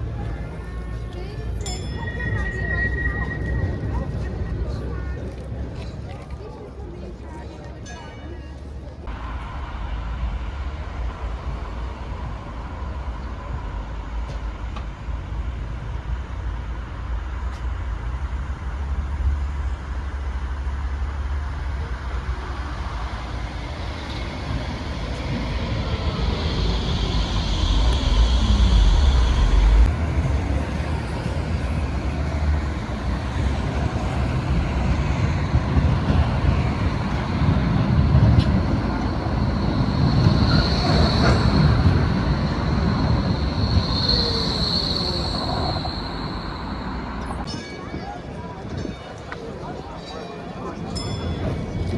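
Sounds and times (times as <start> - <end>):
tram wheels rumbling on rails: 0.0 - 7.8, 8.6 - 51.9
high-pitched brake squeal: 1.7 - 4.8, 22.8 - 29.9, 38.2 - 47.8.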